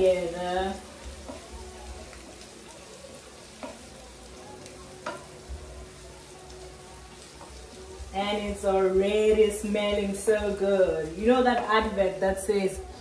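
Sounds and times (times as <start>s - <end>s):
vegetables sizzling in a frying pan: 0.0s - 13.0s
wooden spoon knocking a pan: 1.2s - 1.5s, 3.6s - 3.8s, 5.0s - 5.3s.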